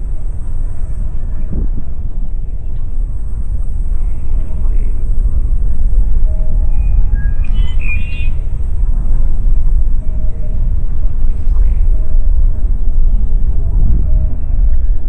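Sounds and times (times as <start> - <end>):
wind buffeting the microphone: 0.0 - 15.0.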